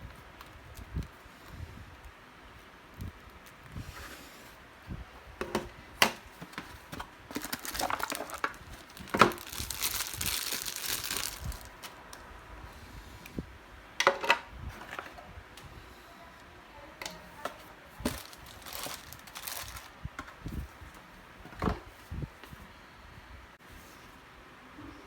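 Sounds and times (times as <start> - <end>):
packaging crinkling: 6.5 - 12.2, 18.0 - 20.6.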